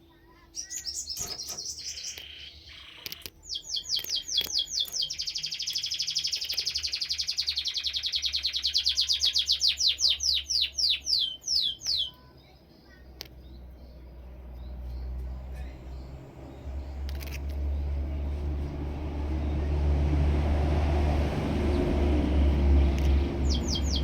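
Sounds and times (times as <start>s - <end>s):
canary singing: 0.0s - 19.8s, 21.6s - 24.0s
sharp clicks: 1.2s - 7.2s, 11.8s - 12.2s, 17.0s - 17.6s, 22.9s - 23.2s.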